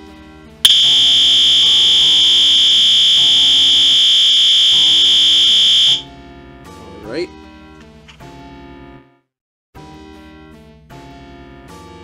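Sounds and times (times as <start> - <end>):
high-pitched alarm horn tone: 0.7 - 6.0.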